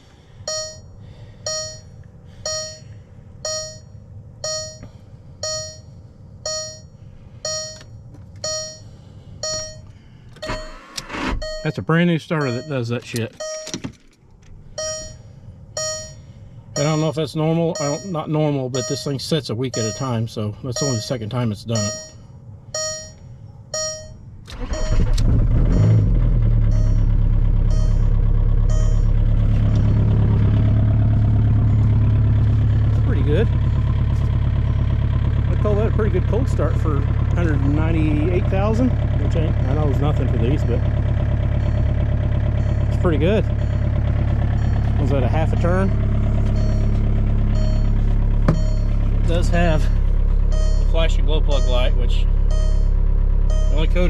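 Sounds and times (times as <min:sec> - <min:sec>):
diesel engine cranking and idling: 0:00.0 - 0:54.0
dashboard warning chime beeping: 0:00.5 - 0:13.9, 0:14.7 - 0:26.1, 0:26.7 - 0:54.0
starter motor cranking engine: 0:24.5 - 0:26.6.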